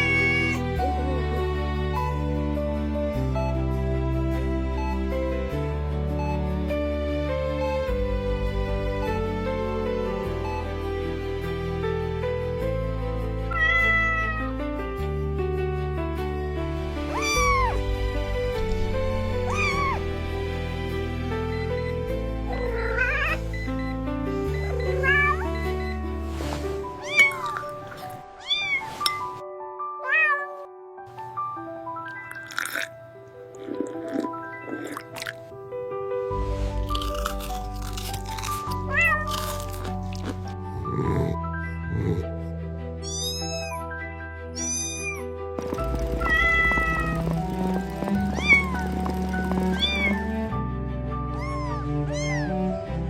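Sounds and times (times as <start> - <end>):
cat meowing: 0.0 - 0.7, 13.5 - 14.6, 17.1 - 18.0, 19.4 - 20.2, 22.5 - 23.6, 24.6 - 25.6, 27.0 - 29.2, 30.0 - 30.7, 38.8 - 40.0, 43.0 - 43.8, 44.6 - 45.2, 46.1 - 47.3, 48.3 - 48.9, 49.7 - 50.2, 51.3 - 52.6
background music: 0.0 - 53.0.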